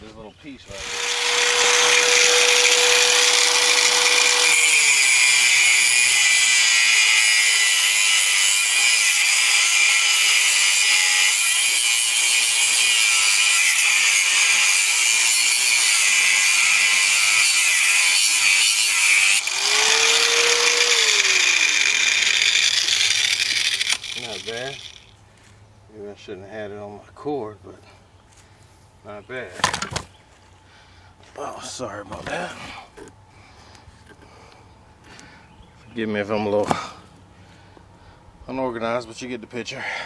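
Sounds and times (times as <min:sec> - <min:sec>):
angle grinder cutting steel: 0:00.7 - 0:25.1.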